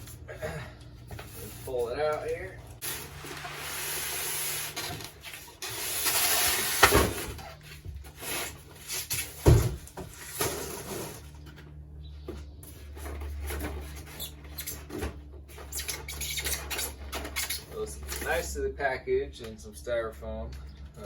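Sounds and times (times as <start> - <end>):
cardboard and styrofoam rubbing: 2.8 - 11.3.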